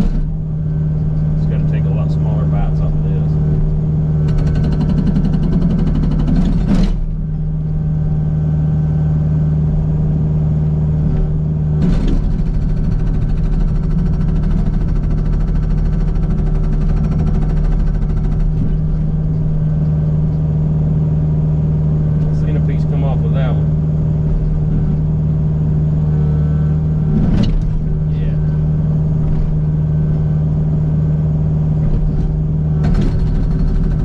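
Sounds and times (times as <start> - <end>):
hydraulic breaker hammering rock: 0.0 - 0.4, 4.2 - 7.2, 11.8 - 19.1, 32.1 - 34.0
excavator diesel engine running: 0.0 - 34.0.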